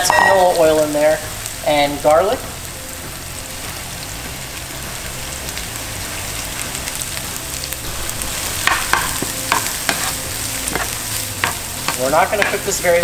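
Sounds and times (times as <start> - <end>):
vegetables sizzling in oil: 0.0 - 13.0
spatula tapping and scraping pan: 8.6 - 13.0.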